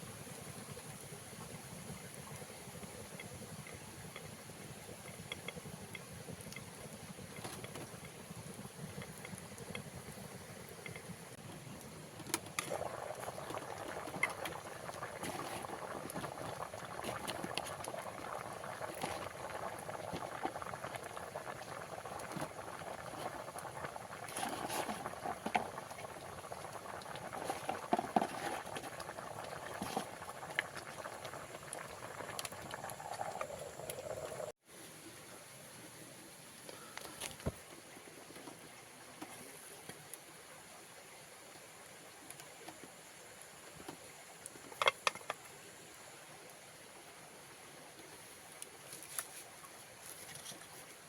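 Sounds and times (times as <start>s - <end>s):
water bubbling at a boil: 0.0s - 34.9s, 35.9s - 51.0s.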